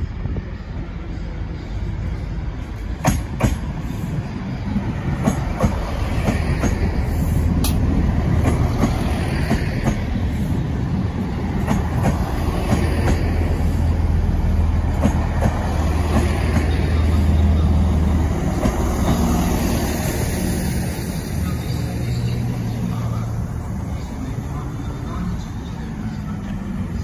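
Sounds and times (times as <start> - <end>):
diesel train engine humming: 0.0 - 27.0
train wheels rumbling: 0.0 - 27.0.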